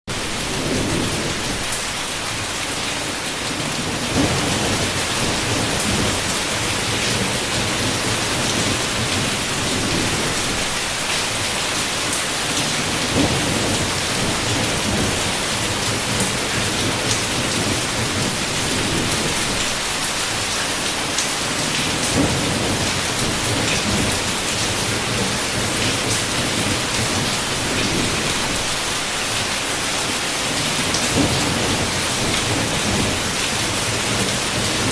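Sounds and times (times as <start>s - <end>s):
heavy rain pouring: 0.1s - 34.9s
low thunder rumbling: 0.2s - 2.0s, 3.5s - 11.5s, 12.4s - 20.4s, 21.4s - 29.2s, 30.4s - 34.9s.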